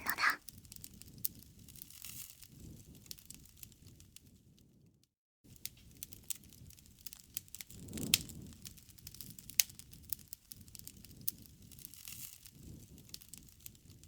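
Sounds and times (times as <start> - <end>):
wood fire crackling and popping: 5.5 - 14.0
low rush of flames: 5.7 - 13.7.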